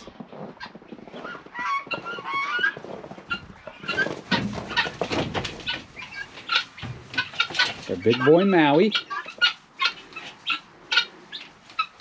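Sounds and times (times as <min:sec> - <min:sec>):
peahens honking calls: 0:01.3 - 0:12.0
clattering rustle: 0:02.0 - 0:08.1.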